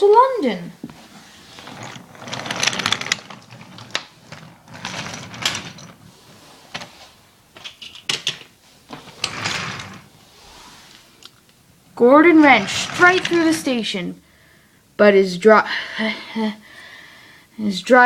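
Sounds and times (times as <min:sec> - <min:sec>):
toy train rattling on track: 0:01.6 - 0:06.0, 0:12.4 - 0:13.7.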